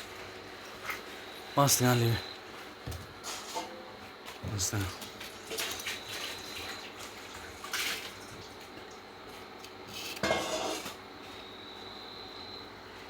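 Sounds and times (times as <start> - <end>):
utensil scraping a pot: 9.9 - 11.0.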